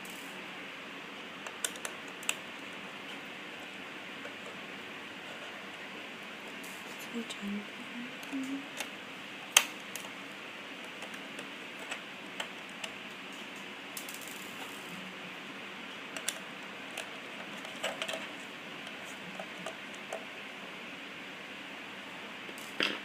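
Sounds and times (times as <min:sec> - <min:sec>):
steady hiss: 0:00.0 - 0:23.0
small parts clicking and tapping: 0:01.4 - 0:04.6, 0:16.2 - 0:20.3.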